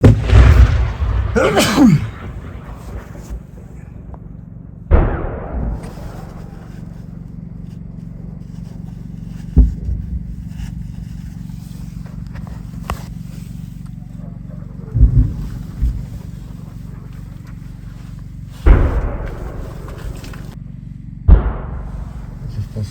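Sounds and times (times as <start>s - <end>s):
gunfire blasts: 0.0s - 6.9s, 18.6s - 20.1s, 21.3s - 22.6s
steady low rumble: 0.0s - 22.9s.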